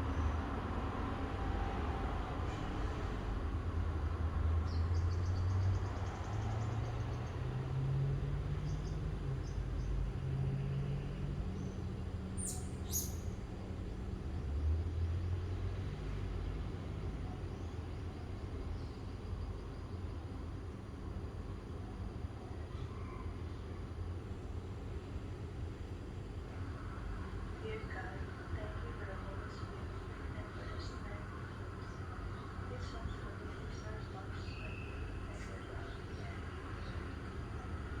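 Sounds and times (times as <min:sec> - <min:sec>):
vehicle engine hum: 0:00.0 - 0:22.8, 0:23.4 - 0:38.0
birds chirping: 0:04.6 - 0:13.4, 0:26.8 - 0:38.0.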